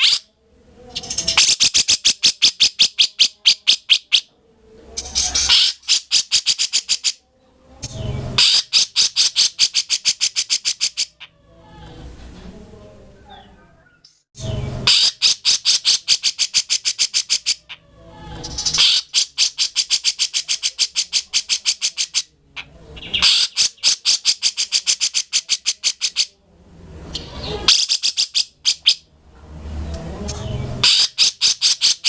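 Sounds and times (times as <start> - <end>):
bulbul chattering call: 14.8 - 17.8, 30.4 - 32.0.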